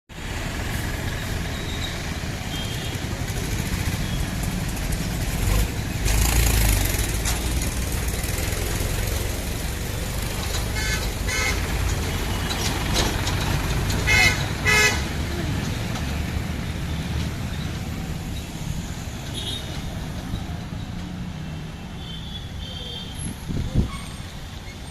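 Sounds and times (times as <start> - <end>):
traffic engine rumble: 0.1 - 24.9
vehicle passing close: 3.0 - 19.1
car horn toots: 10.8 - 11.6, 14.0 - 15.1.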